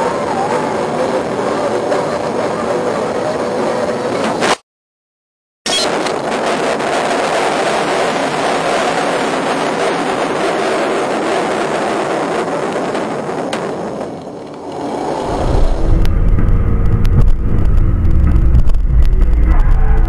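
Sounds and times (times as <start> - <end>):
rushing vehicle noise: 0.0 - 4.6, 5.7 - 20.0
low engine rumble: 14.1 - 20.0.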